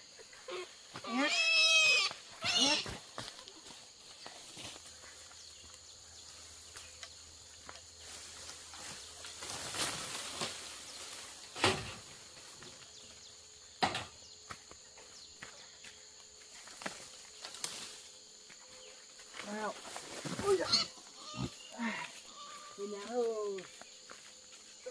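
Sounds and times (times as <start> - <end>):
faint high insect drone: 0.0 - 24.9
knocks and rustles: 8.4 - 12.9, 13.8 - 14.2.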